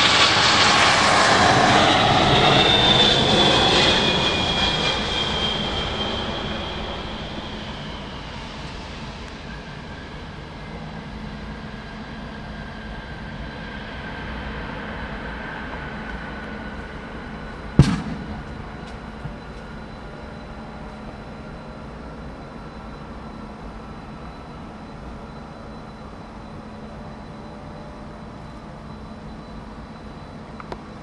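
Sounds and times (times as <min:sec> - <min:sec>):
jet engines rumbling and whining: 0:00.0 - 0:31.0
sharp knock: 0:17.8 - 0:18.6.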